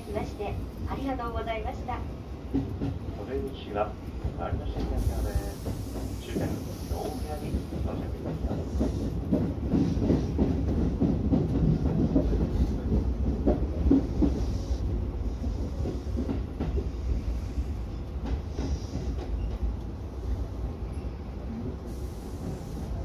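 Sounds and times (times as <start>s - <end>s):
train rumble: 0.0s - 23.0s
train wheels clacking over joints: 2.4s - 19.9s.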